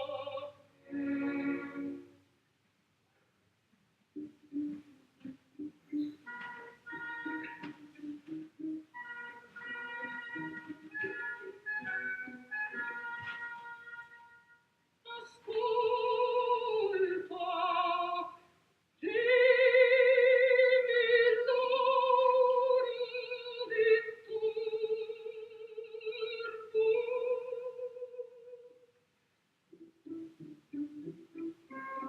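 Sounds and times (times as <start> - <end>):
woman singing operatic notes: 0.0 - 2.2, 15.1 - 18.4, 19.0 - 28.8.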